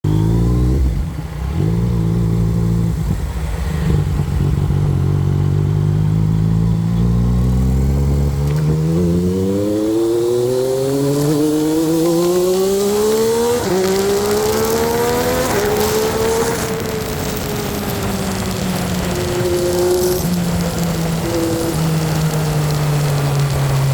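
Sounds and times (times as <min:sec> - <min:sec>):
motorcycle engine accelerating: 0:00.0 - 0:23.9.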